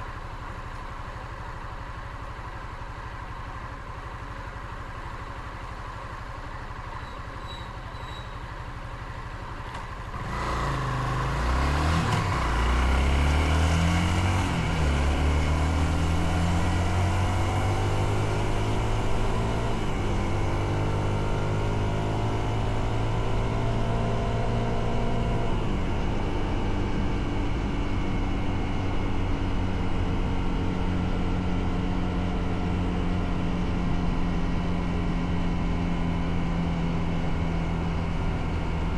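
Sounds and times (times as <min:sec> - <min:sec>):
motorcycle engine revving: 0:10.1 - 0:29.2.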